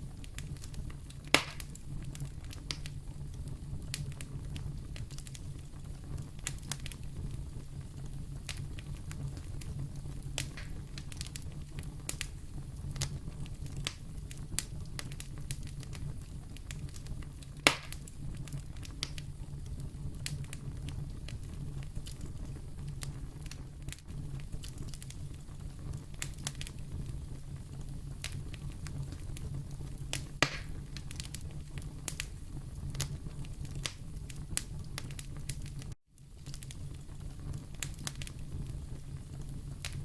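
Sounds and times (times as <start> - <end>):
fireplace fire rumbling: 0.0 - 40.0
wood fire crackling: 0.0 - 40.0
loud pop of fire: 0.3 - 3.0, 10.4 - 16.0, 16.6 - 19.5, 30.1 - 38.8.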